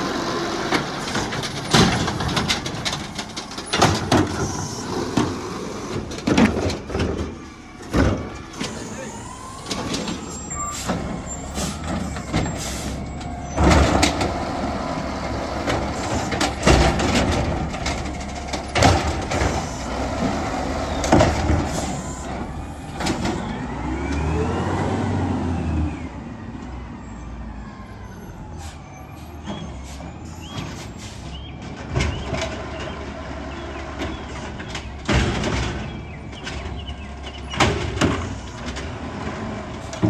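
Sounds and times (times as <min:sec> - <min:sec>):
loud bangs and clatters: 0:00.0 - 0:23.5
garbage truck engine running: 0:00.0 - 0:26.4.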